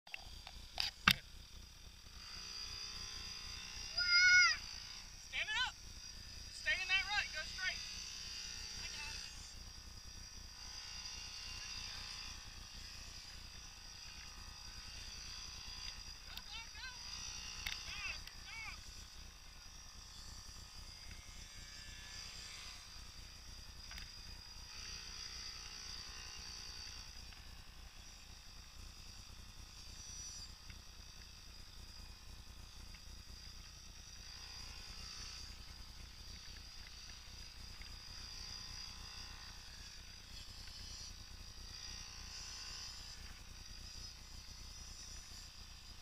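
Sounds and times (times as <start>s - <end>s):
faint small engine buzz: 0.1s - 46.0s
high hiss: 3.7s - 7.8s.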